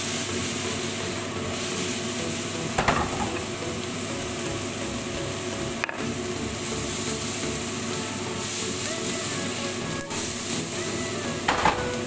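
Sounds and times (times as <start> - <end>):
zucchini sizzling in a pan: 0.0 - 12.0
pan clanking: 2.7 - 3.6, 11.5 - 12.0.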